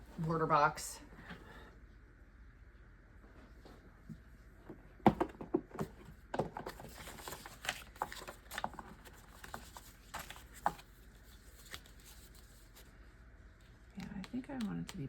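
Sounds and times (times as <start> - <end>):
cardstock sheets rustling: 6.6 - 13.0.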